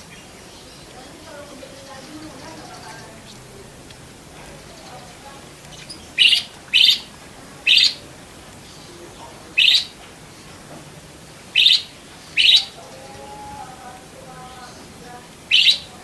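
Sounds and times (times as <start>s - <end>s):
budgerigar chirps: 5.8s - 8.0s, 9.5s - 10.0s, 11.5s - 12.8s, 15.5s - 15.9s.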